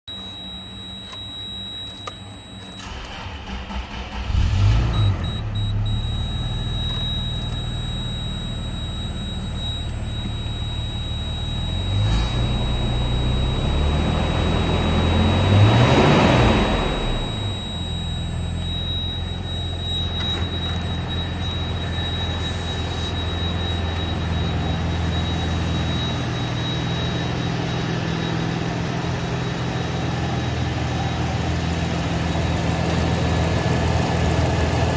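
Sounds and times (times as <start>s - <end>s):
car engine starting and revving: 2.8s - 9.0s, 10.6s - 21.2s.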